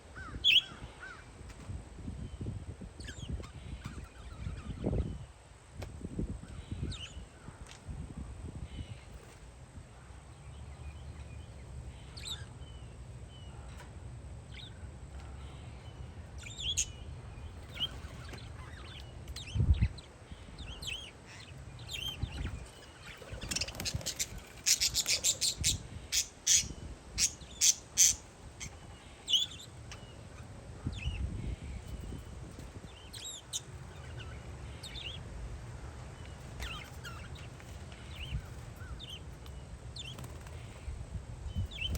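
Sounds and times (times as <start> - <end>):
wind rumble on microphone: 0.0 - 10.1, 16.2 - 29.0, 30.0 - 41.9
parakeets chirping: 0.4 - 1.2, 3.0 - 5.1, 6.7 - 7.2, 14.5 - 40.8, 41.5 - 41.9.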